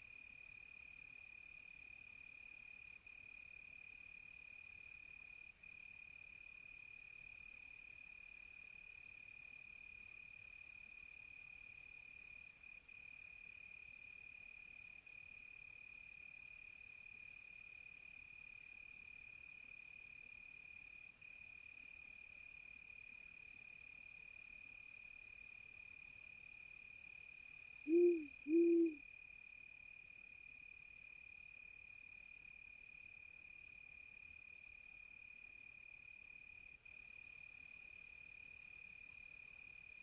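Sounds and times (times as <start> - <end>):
crickets chirring: 27.9 - 29.0
owl hooting: 27.9 - 29.0.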